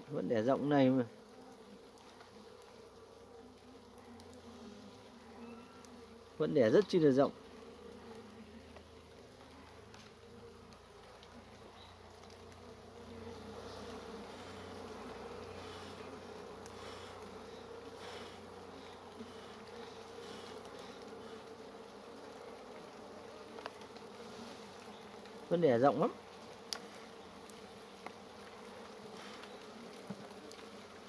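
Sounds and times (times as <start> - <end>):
honey bees buzzing: 0.0 - 31.0
faint clicks: 3.5 - 4.4, 7.9 - 12.7, 26.4 - 30.8.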